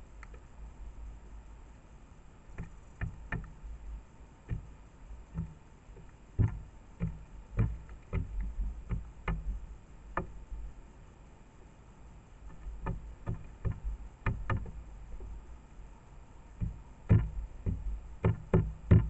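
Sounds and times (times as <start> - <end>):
beak tapping on feeder: 2.6 - 3.6, 4.4 - 9.5, 12.5 - 14.8, 16.6 - 19.0.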